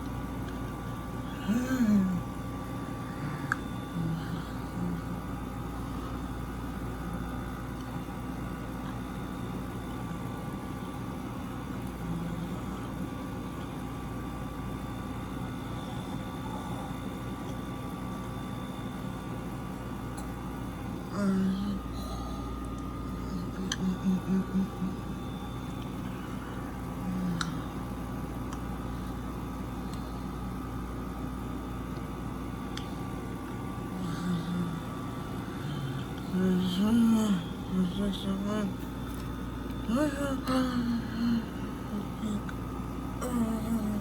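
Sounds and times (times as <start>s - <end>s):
air conditioners humming and whining: 0.0s - 44.0s.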